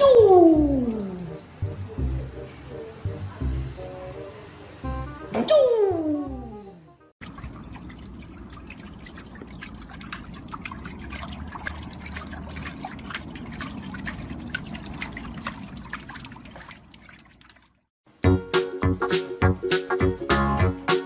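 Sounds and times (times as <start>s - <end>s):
liquid splashing and trickling: 7.2s - 17.9s
small drips and clicks: 7.2s - 17.9s.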